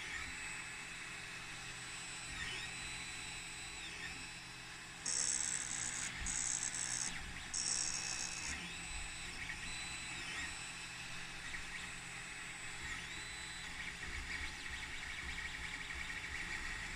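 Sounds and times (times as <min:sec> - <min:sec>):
stepper motors whining: 0:01.8 - 0:14.8.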